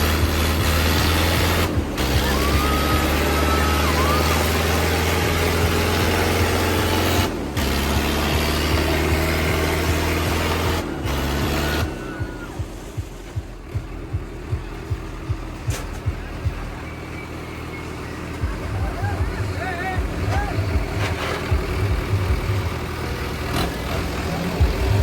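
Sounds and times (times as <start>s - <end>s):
diesel tractor engine running: 0.0s - 25.0s.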